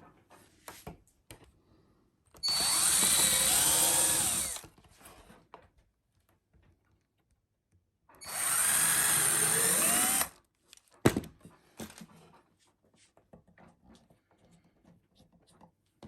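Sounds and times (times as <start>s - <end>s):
power drill motor: 2.4s - 4.7s, 8.2s - 10.3s.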